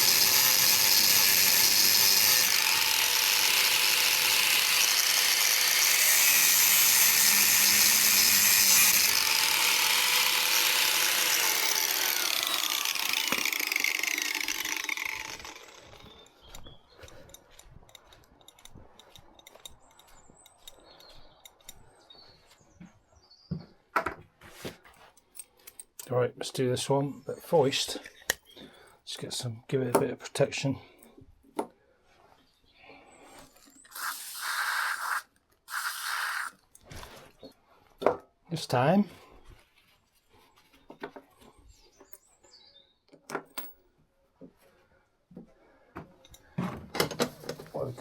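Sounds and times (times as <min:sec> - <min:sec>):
angle grinder cutting steel: 0:00.0 - 0:16.0, 0:33.8 - 0:36.6
light metallic clicks and rattles: 0:17.0 - 0:21.8.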